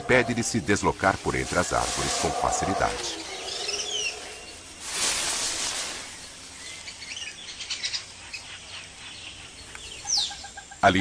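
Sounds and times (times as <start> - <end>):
noisy rustle: 0.0 - 7.7
high bird chirps: 2.9 - 4.7.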